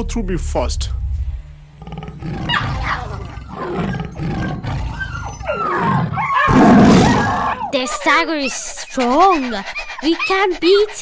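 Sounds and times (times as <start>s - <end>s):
tiger growling and roaring: 1.0s - 11.0s.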